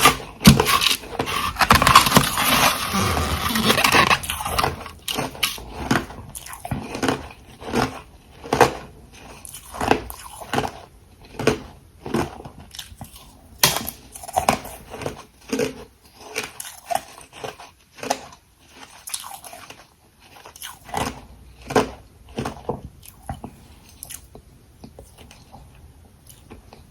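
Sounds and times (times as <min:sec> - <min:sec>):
ice being chewed: 0:00.0 - 0:26.9.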